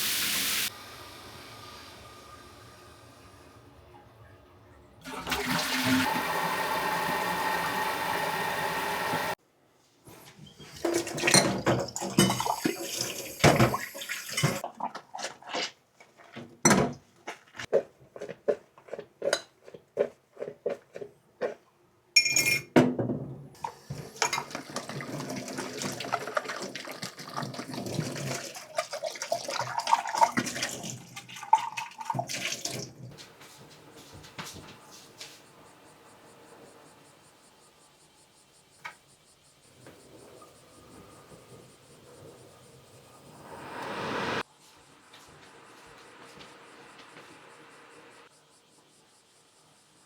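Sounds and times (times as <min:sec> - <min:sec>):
dishes and utensils clattering: 0:10.4 - 0:15.8, 0:16.7 - 0:17.7, 0:22.2 - 0:29.0.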